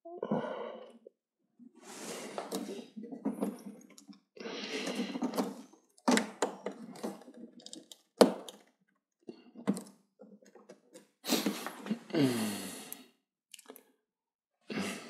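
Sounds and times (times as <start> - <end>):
plastic clicks and scraping: 2.4 - 8.8.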